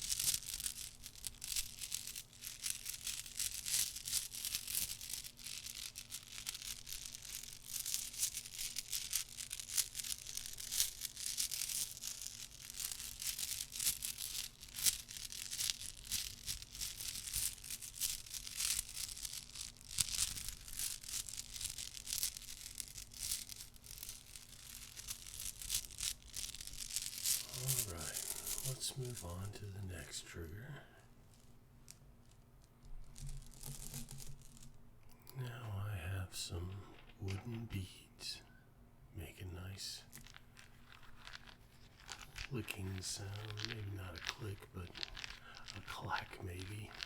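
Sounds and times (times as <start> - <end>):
soft rapid clicks and scratches: 40.0 - 47.0.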